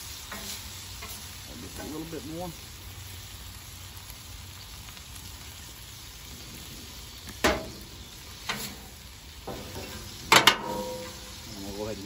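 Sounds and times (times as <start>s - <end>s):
chicken sizzling on griddle: 0.0s - 12.0s
metal spatula scraping griddle: 0.2s - 2.0s, 7.4s - 11.4s.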